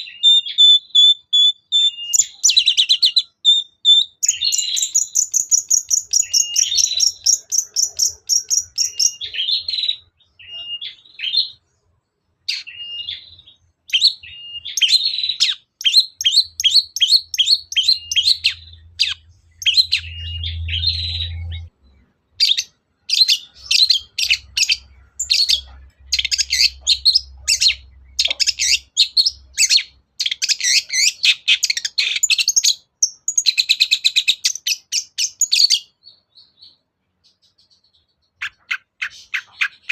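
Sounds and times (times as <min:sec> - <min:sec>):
bird chattering song: 0:00.0 - 0:39.9.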